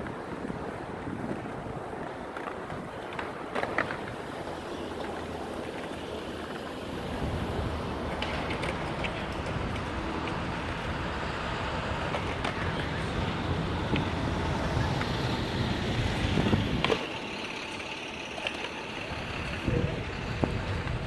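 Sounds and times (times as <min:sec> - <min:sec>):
wind on microphone: 0:00.0 - 0:03.1, 0:06.8 - 0:17.1, 0:19.1 - 0:21.0
traffic rumble: 0:00.0 - 0:21.0.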